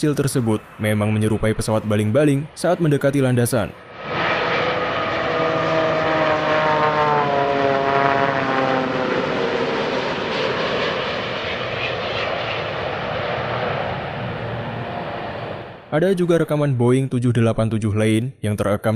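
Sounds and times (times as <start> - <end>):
rush of jet engine and air: 0.0 - 15.9
propeller-like whine falling in pitch: 3.8 - 15.9.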